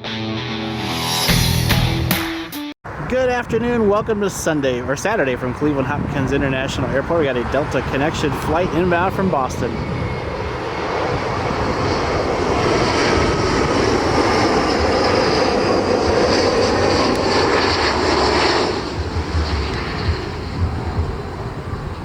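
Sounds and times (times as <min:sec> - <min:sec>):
jet engine with fan whine: 0:02.9 - 0:22.0
wind buffeting microphone: 0:02.9 - 0:22.0.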